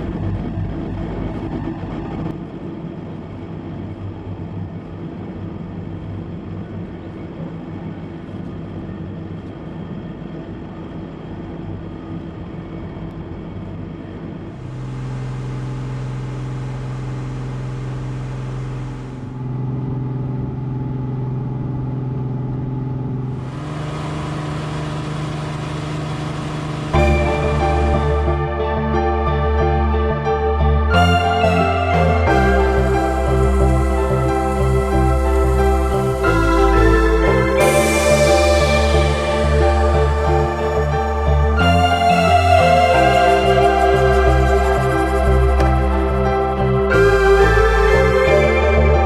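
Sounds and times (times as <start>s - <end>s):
boat engine running: 14.5s - 29.8s
soft ambient music: 23.3s - 49.0s.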